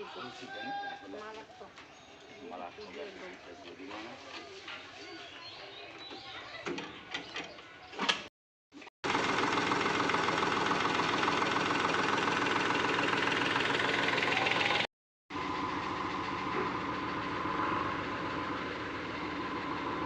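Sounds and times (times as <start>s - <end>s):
tractor diesel engine running: 9.0s - 20.0s.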